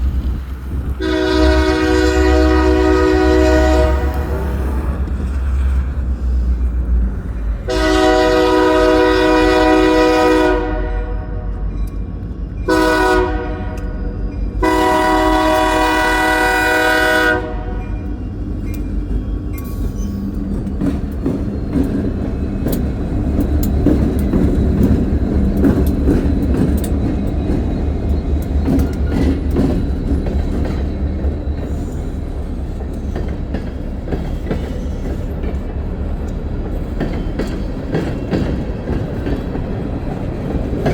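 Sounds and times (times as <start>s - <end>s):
train engine rumble: 0.0s - 40.9s
locomotive horn blasts: 1.0s - 4.6s, 7.7s - 11.7s, 12.7s - 18.0s
wheels clicking over rail joints: 17.5s - 40.9s.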